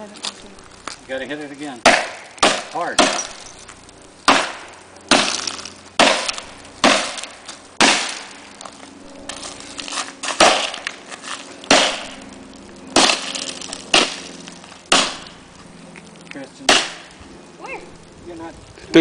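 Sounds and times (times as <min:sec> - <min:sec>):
glass breaking: 0:01.8 - 0:08.4, 0:10.2 - 0:12.2, 0:12.9 - 0:15.4
hammer striking glass: 0:01.9 - 0:03.5.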